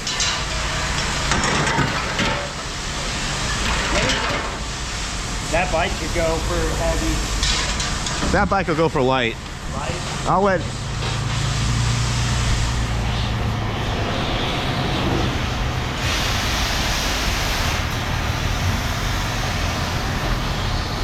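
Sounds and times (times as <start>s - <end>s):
steady rushing noise: 0.0s - 21.0s
vehicle engine running: 8.3s - 16.0s.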